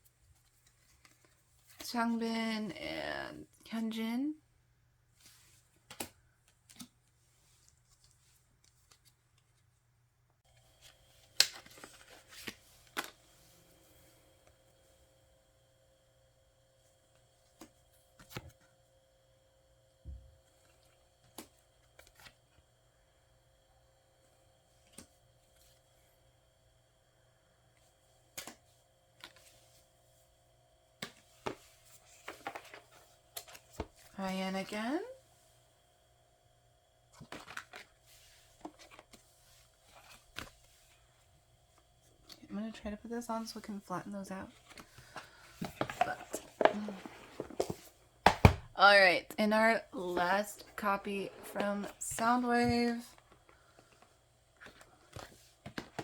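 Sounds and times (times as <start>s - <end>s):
faint steady hum: 0.0s - 56.0s
cards clicking and tapping: 47.5s - 48.6s, 54.6s - 56.0s.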